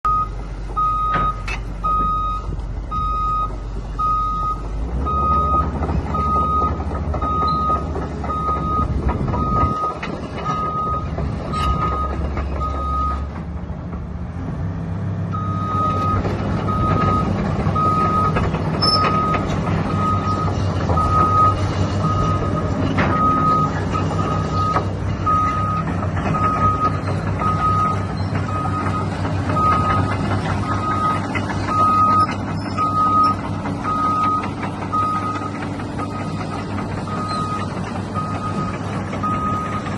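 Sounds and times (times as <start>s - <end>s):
travel alarm beeping: 0.1s - 9.9s
excavator diesel engine running: 0.1s - 39.9s.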